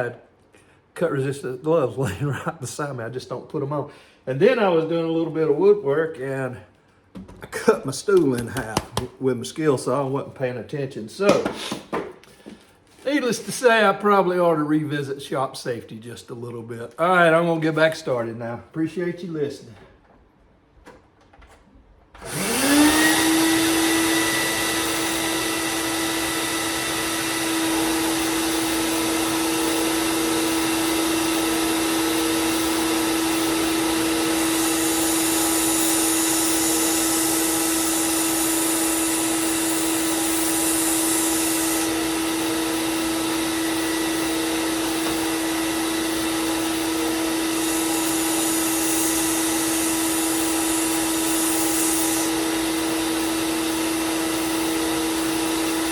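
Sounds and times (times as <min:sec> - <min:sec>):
belt grinder whine: 0:22.2 - 0:55.9
dust collector suction rushing: 0:22.2 - 0:55.9.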